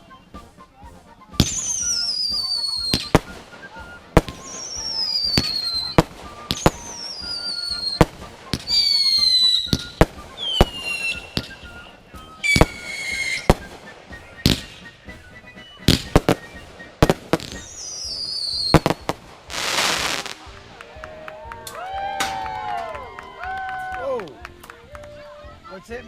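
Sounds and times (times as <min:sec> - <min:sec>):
whistling fireworks: 0:00.0 - 0:21.1
firework bangs: 0:01.2 - 0:21.1.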